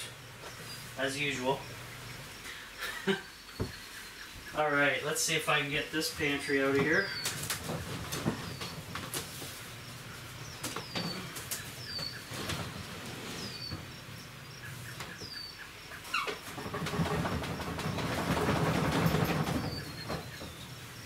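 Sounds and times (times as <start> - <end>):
bird chirping: 0.0 - 21.0
cabinet scraping across floor: 12.0 - 14.0.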